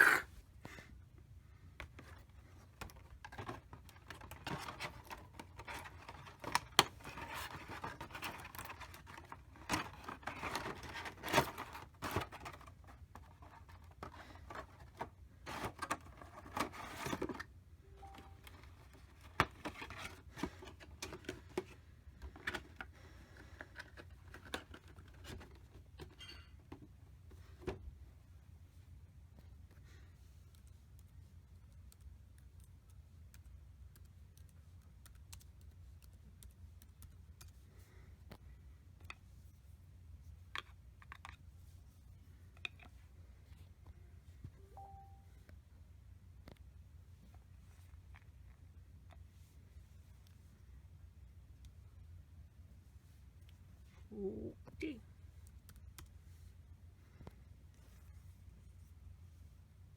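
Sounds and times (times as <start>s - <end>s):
packaging rustling and scraping: 2.9s - 17.5s, 18.1s - 22.8s.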